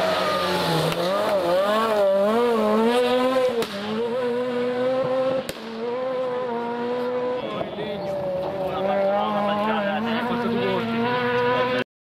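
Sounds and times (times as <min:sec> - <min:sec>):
rally car engine revving: 0:00.0 - 0:11.9
sharp crack: 0:03.6 - 0:03.9, 0:05.5 - 0:05.8.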